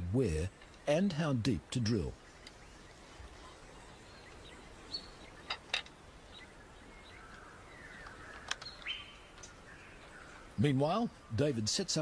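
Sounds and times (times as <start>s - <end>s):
bird chirps: 0.0s - 12.0s
sharp clicks: 8.0s - 9.6s.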